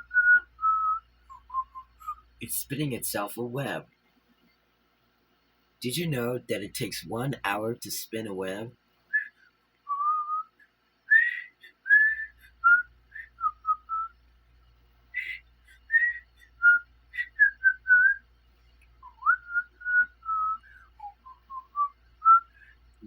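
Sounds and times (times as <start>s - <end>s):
person whistling a tune: 0.0s - 2.2s, 9.1s - 14.1s, 15.2s - 18.2s, 19.0s - 22.7s.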